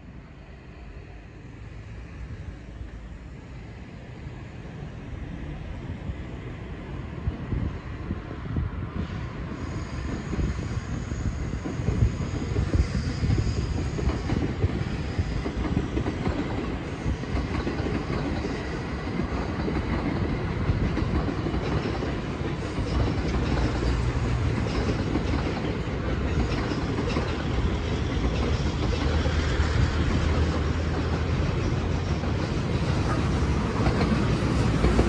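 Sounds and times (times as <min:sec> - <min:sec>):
train wheels rumbling on rail: 0:00.0 - 0:35.0
wheels clacking over rail joints: 0:13.9 - 0:35.0.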